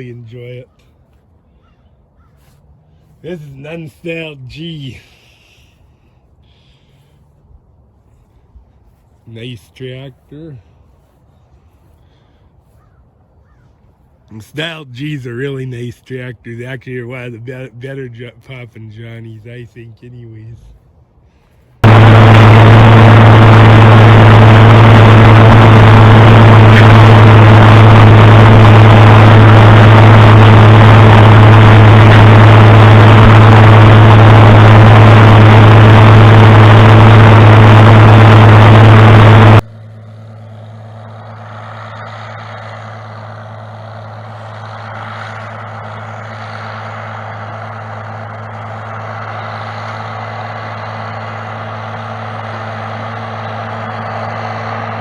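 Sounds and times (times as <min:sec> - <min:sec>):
quiet engine hum: 0:00.0 - 0:55.0
heavy engine running loud: 0:20.6 - 0:55.0.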